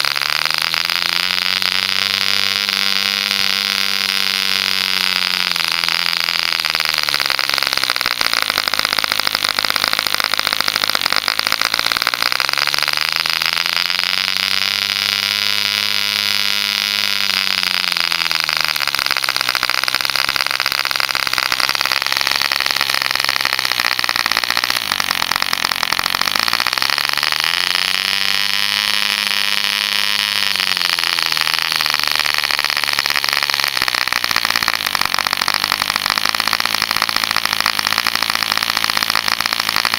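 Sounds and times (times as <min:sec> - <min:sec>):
model diesel engine running at high speed: 0:00.0 - 0:39.9.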